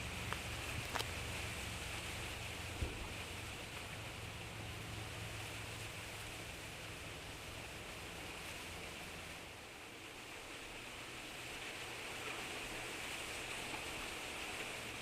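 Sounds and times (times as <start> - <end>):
soft thump: 2.8 - 3.1.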